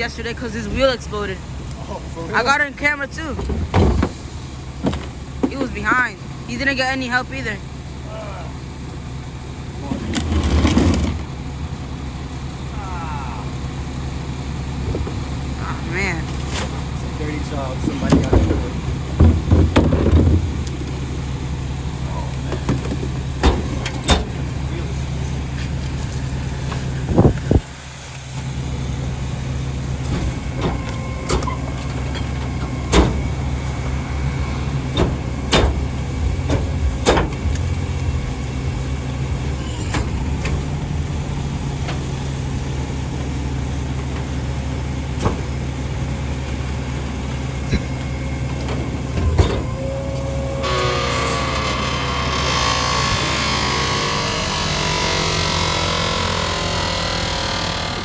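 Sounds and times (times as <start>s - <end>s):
diesel truck engine running: 0.0s - 58.0s
knocks and bangs of bins: 3.2s - 5.8s, 17.8s - 21.1s, 22.4s - 24.5s, 30.1s - 33.5s, 34.7s - 38.0s, 45.1s - 45.7s.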